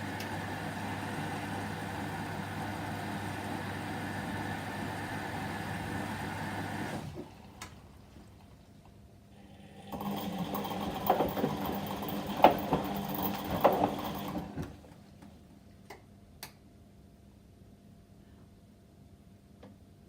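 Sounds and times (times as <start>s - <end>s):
washing machine drum turning: 10.0s - 14.6s.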